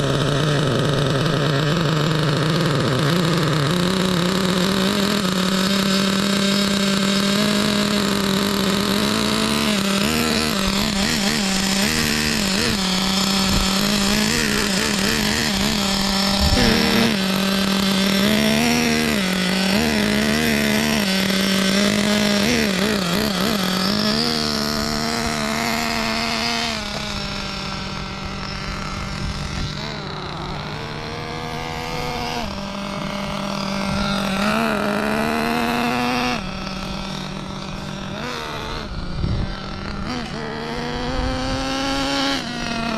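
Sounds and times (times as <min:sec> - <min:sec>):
nitro engine running: 0:00.0 - 0:42.9.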